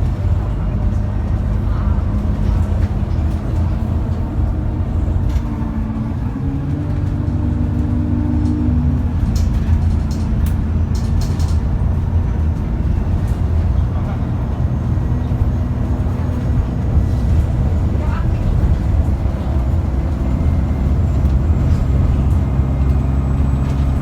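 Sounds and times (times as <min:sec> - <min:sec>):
diesel bus engine rumbling: 0:00.0 - 0:24.0.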